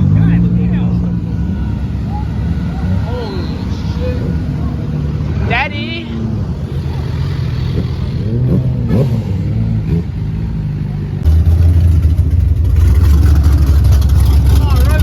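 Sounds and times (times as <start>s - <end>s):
car engines revving: 0.0s - 15.0s
crackling exhaust rumble: 0.0s - 15.0s.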